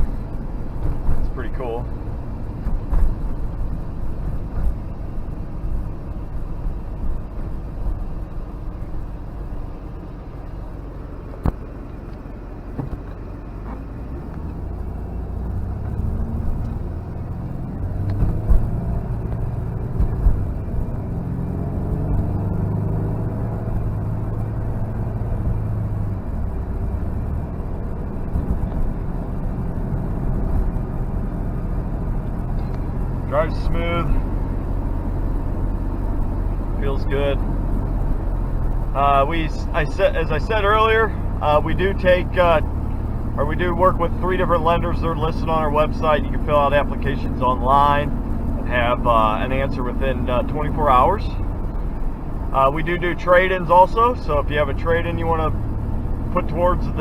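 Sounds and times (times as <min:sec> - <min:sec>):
car engine accelerating: 0:00.0 - 0:57.0
road noise inside car: 0:00.0 - 0:57.0
short knocks: 0:12.8 - 0:13.8.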